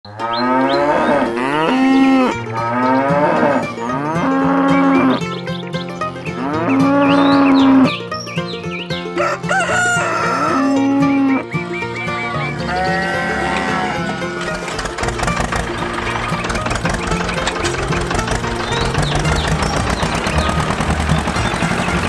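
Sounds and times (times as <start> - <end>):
cattle mooing: 0.1 - 5.2, 6.3 - 8.0, 12.6 - 17.8
bird chirps: 4.5 - 9.2, 10.8 - 13.3, 15.4 - 22.0.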